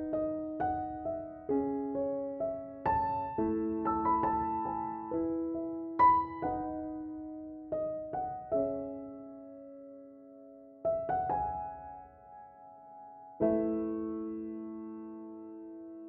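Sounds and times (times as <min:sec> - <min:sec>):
gentle solo piano: 0:00.0 - 0:16.0.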